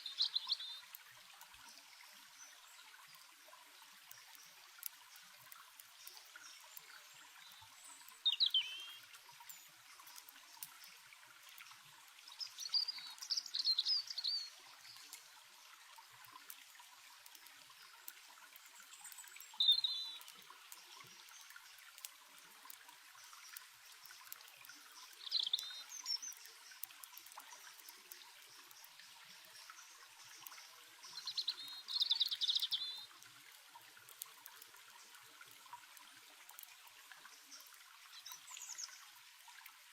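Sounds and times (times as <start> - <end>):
songbird chirping: 0.0 - 0.9, 6.0 - 10.6, 12.3 - 15.2, 18.7 - 21.8, 23.2 - 33.1
stream trickling: 0.0 - 39.9
campfire crackling: 0.3 - 39.8.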